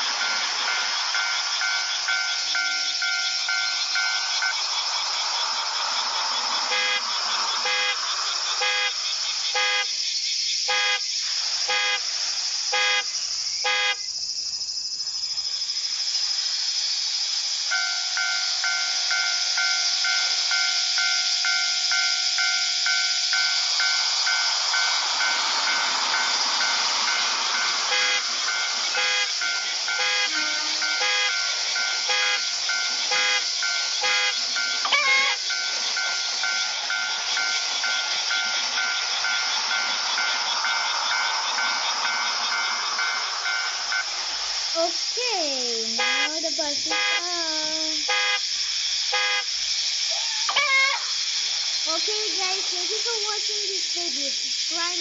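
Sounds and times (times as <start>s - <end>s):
level-crossing warning bell ringing: 0.0s - 5.0s, 17.7s - 44.5s
constant high hiss: 0.0s - 55.0s.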